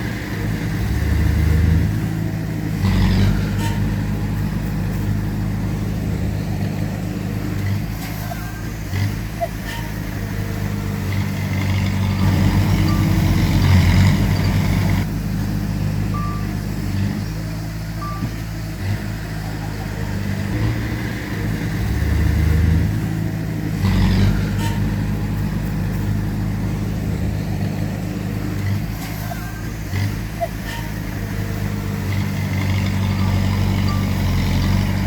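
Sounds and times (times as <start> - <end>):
heavy diesel machinery running: 0.0 - 35.0
short high beeps: 16.1 - 16.6, 18.0 - 18.4.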